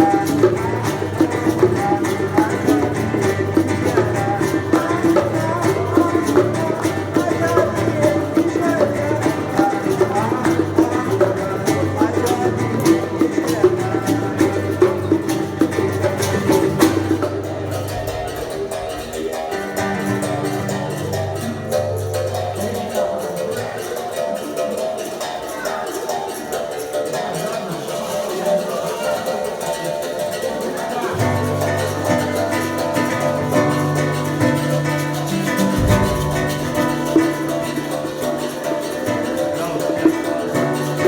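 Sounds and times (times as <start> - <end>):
hand drum hits: 0.0 - 21.8, 31.8 - 41.0
acoustic guitar playing: 0.0 - 22.5, 31.2 - 41.0.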